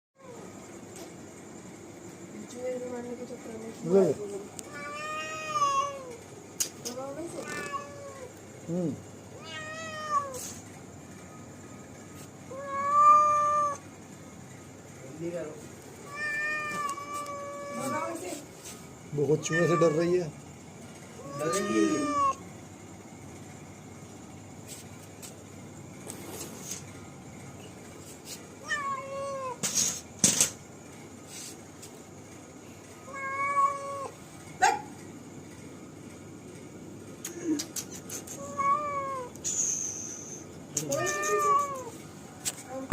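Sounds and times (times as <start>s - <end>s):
cat meowing: 4.7s - 6.2s, 7.4s - 8.3s, 9.4s - 10.5s, 12.5s - 13.8s, 16.0s - 18.2s, 19.4s - 20.1s, 21.2s - 22.4s, 28.6s - 29.6s, 33.0s - 34.2s, 38.4s - 39.4s, 40.8s - 42.0s.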